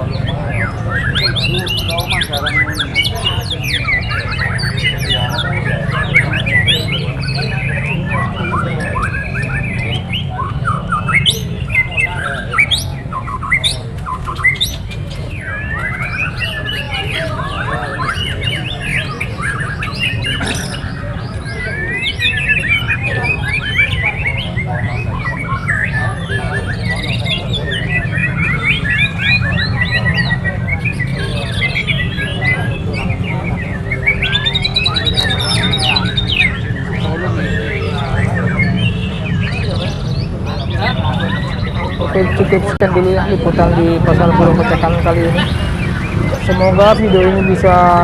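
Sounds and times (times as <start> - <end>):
songbirds chirping and singing: 0.0 - 48.0
steady low rumble: 42.0 - 48.0.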